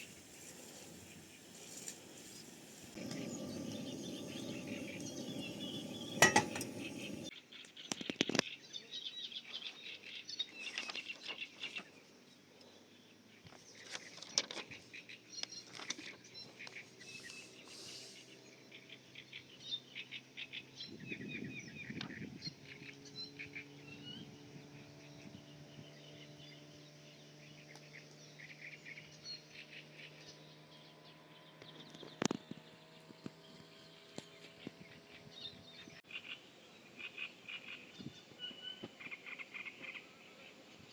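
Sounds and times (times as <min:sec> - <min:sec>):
low steady hum: 0:00.3 - 0:07.3
songbirds chirping and singing: 0:00.4 - 0:07.3.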